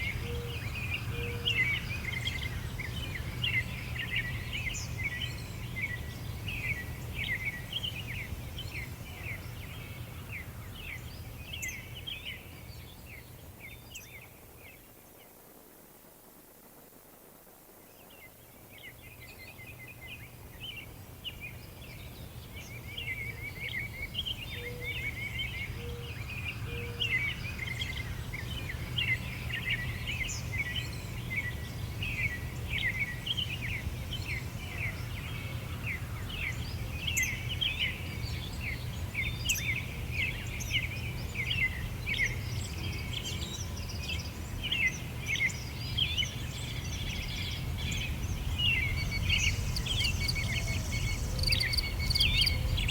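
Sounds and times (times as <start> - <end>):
small birds chirping: 18.0 - 52.9.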